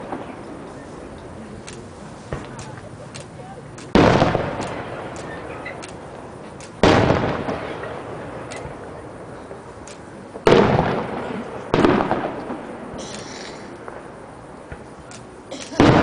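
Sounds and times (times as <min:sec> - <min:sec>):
firework booms: 0:00.0 - 0:01.1, 0:02.3 - 0:02.9, 0:03.6 - 0:15.0, 0:15.8 - 0:16.0
faint firework pops: 0:01.6 - 0:06.0, 0:09.5 - 0:16.0.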